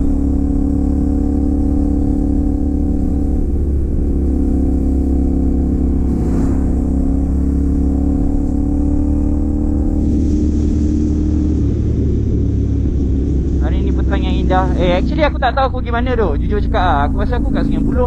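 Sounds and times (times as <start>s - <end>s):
motorcycle engine cruising: 0.0s - 18.0s
wind and road noise: 0.0s - 18.0s.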